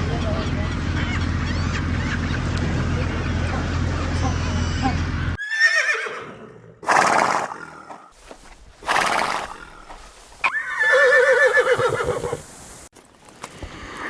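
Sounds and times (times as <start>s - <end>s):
horse whinnying: 5.4s - 8.1s, 8.8s - 12.4s.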